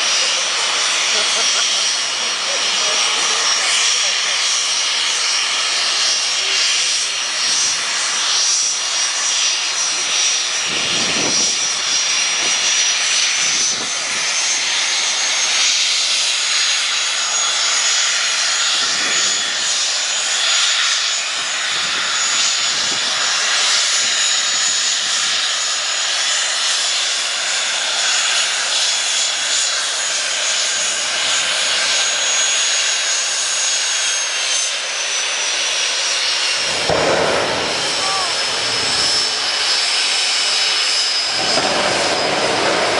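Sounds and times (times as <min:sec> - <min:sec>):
jet engine rushing and whining: 0:00.0 - 0:42.9.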